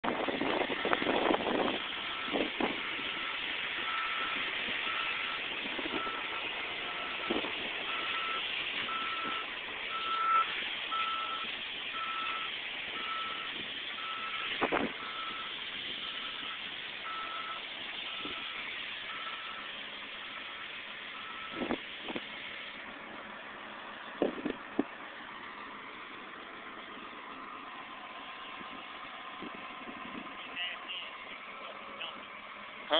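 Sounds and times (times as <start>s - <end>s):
loader engine running: 0.0s - 32.9s
backup alarm beeping: 3.1s - 19.7s, 21.2s - 21.8s.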